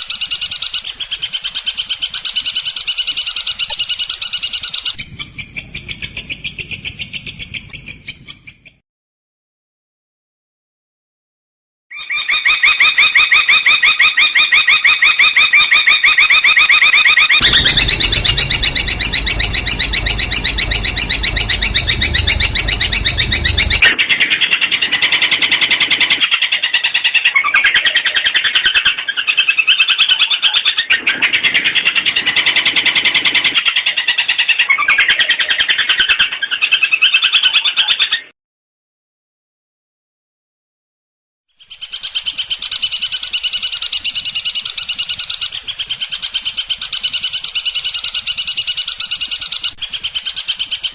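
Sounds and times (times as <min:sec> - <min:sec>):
low rumble: 0:17.4 - 0:24.0
shrike singing rapid notes: 0:17.4 - 0:24.0.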